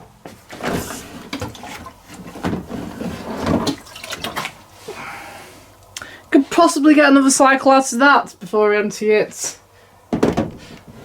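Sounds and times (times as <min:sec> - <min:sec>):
water sloshing in plastic container: 0:00.9 - 0:04.7
plastic knocks: 0:10.1 - 0:10.6.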